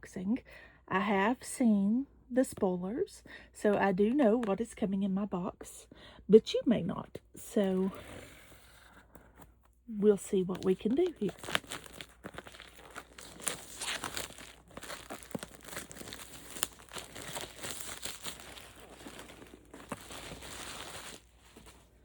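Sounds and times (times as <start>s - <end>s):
packaging crinkling and tearing: 10.4s - 22.0s.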